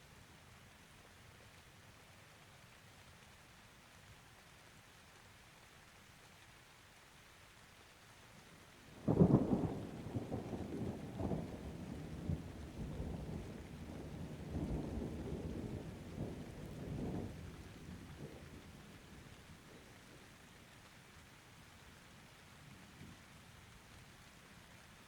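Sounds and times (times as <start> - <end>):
steady rain: 0.0 - 25.0
thunderclap rumbling: 9.1 - 18.8.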